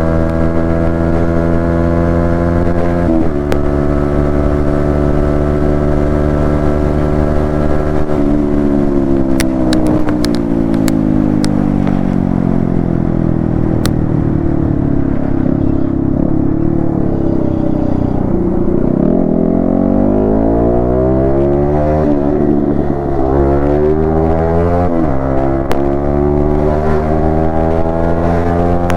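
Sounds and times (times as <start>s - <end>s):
motorcycle engine revving: 0.0s - 28.9s
sharp clicks: 9.2s - 12.0s.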